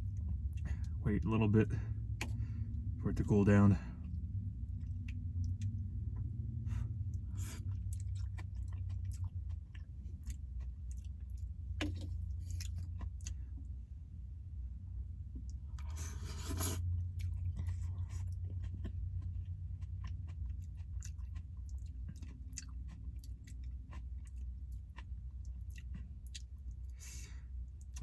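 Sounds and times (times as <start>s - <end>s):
steady low hum: 0.0s - 28.0s
person chewing noodles: 4.0s - 13.6s, 15.4s - 28.0s.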